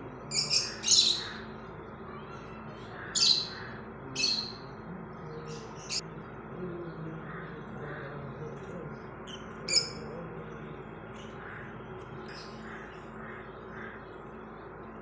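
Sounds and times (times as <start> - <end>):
low steady hum: 0.0 - 15.0
parrots screeching: 3.0 - 4.6.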